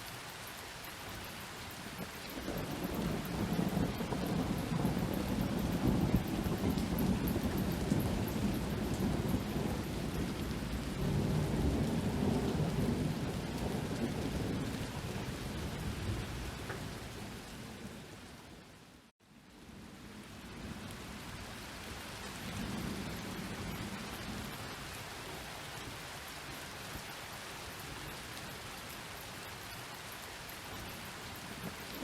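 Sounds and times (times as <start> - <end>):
steady rain falling: 0.0 - 32.0
rolling thunder rumble: 2.0 - 18.4.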